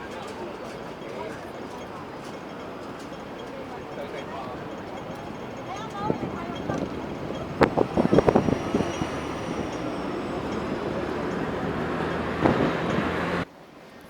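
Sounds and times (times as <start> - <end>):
vehicle moving: 3.0 - 13.5.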